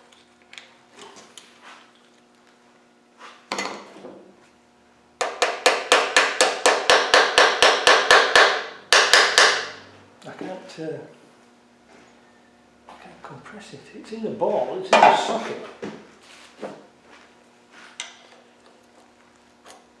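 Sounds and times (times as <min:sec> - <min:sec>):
hammer tapping on metal: 0:05.2 - 0:09.7.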